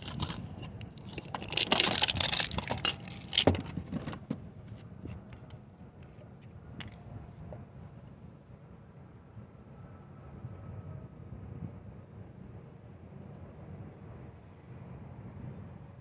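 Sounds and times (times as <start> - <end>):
packaging crinkling and tearing: 0.0 - 4.1.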